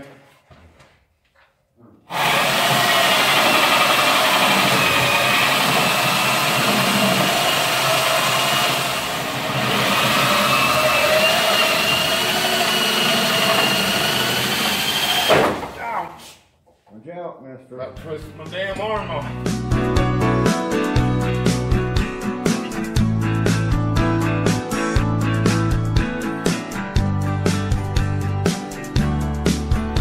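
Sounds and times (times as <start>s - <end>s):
electric drill whining under load: 2.1s - 15.3s.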